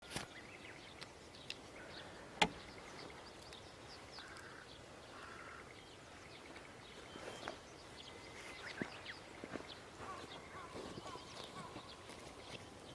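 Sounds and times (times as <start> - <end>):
birds chirping: 0.0 - 12.9
steady low hiss: 0.1 - 12.9
pheasant crowing: 10.0 - 12.1.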